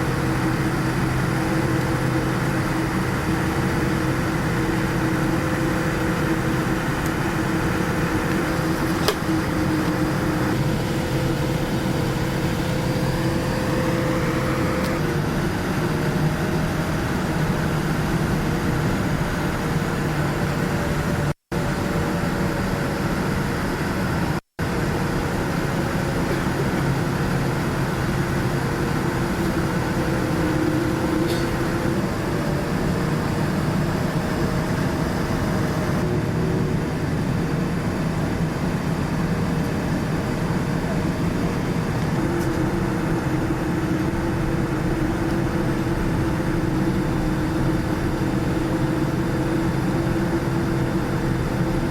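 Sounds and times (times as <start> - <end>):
airliner engine and air-conditioning hum: 0.0 - 51.9.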